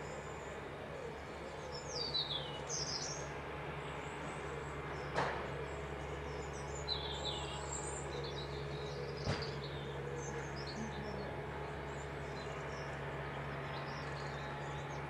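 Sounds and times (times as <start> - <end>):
songbirds chirping: 0.0 - 15.0
steady low hum: 0.0 - 15.0.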